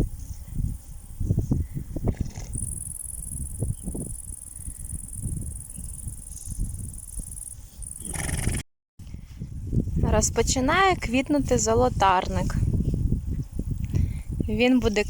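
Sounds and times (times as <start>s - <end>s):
insects chirring: 2.4s - 8.6s.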